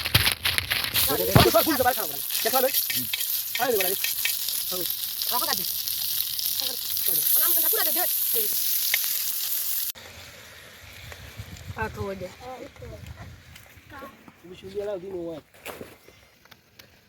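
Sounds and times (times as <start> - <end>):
food sizzling in hot oil: 0.0 - 10.9
people talking: 1.0 - 4.0, 4.7 - 5.7, 6.6 - 8.6, 11.8 - 13.3.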